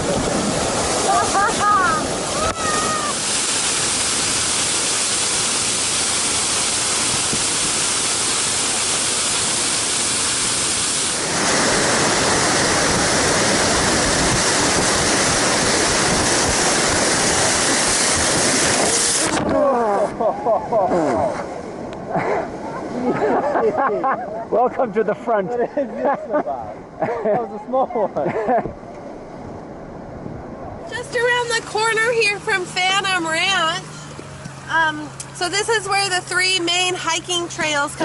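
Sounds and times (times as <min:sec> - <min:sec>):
whitewater rapid roaring: 0:00.0 - 0:29.4.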